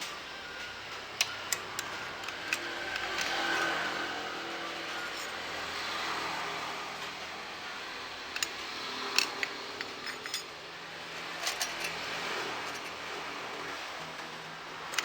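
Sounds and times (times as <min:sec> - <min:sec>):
sharp metal clicks: 0:08.3 - 0:10.5.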